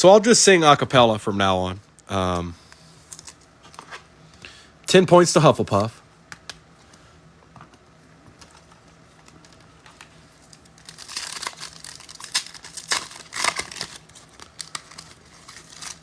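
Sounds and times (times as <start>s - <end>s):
wrapper crinkling and tearing: 9.2s - 16.0s.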